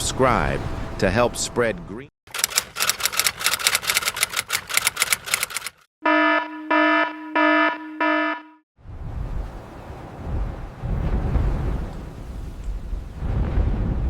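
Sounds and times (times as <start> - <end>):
rapid clicking: 2.3 - 5.9
buzzing electronic alarm beeps: 6.0 - 8.6.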